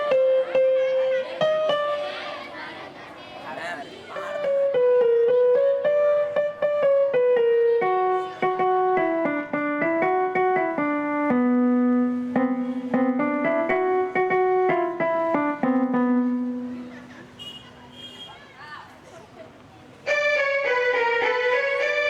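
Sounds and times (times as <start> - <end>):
electronic keyboard melody: 0.0 - 2.4, 4.3 - 17.1, 20.0 - 22.0.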